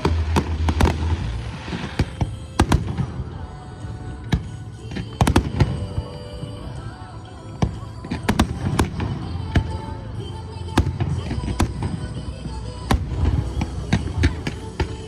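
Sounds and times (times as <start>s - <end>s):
fireworks bangs: 0.0s - 3.3s
continuous low rumble: 0.0s - 15.0s.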